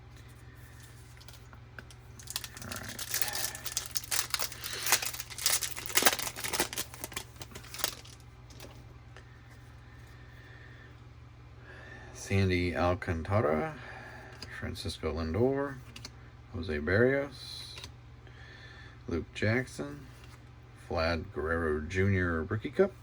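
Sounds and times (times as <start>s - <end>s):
steady low hum: 0.0s - 23.0s
plastic wrapper tearing and crinkling: 1.2s - 8.7s.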